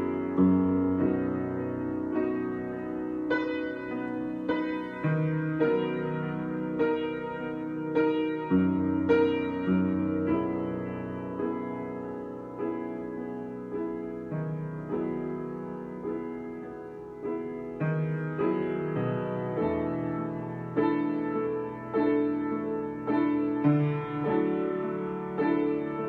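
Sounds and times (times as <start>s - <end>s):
slow solo piano: 0.0s - 26.0s.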